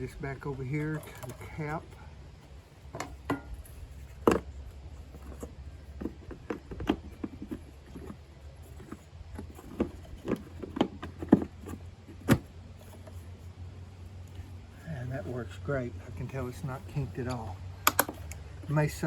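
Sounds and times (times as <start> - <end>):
plastic parts clicking: 17.2 - 18.4.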